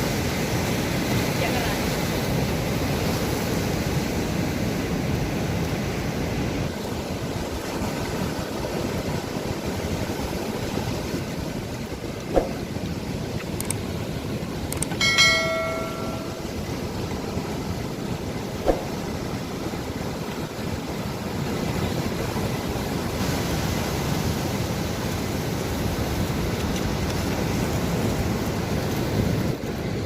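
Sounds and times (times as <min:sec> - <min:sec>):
sea surf washing: 0:00.0 - 0:30.0
bright bell-like ring: 0:14.9 - 0:16.8.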